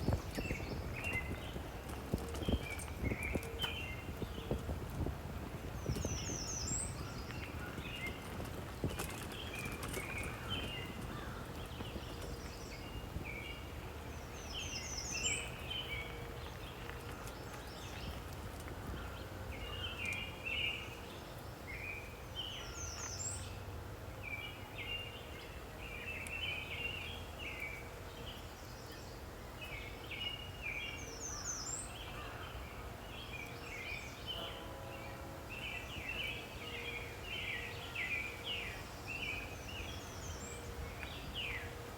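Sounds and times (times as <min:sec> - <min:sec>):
bird singing falling run: 0:00.0 - 0:20.7
birds chirping: 0:00.0 - 0:23.6, 0:24.3 - 0:41.9.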